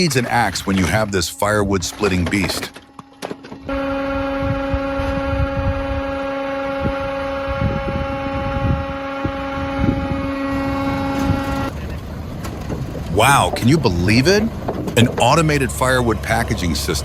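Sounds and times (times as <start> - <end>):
wood pieces knocking and clunking: 1.8 - 3.7, 12.4 - 15.7
firewood processing machine humming: 1.8 - 17.0.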